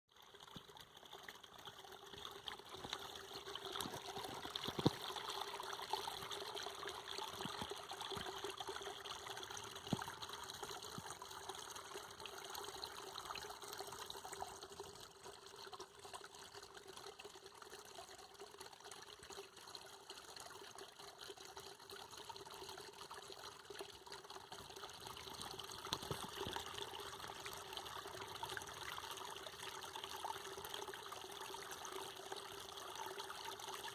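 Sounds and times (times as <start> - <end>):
water trickling: 0.1 - 33.9.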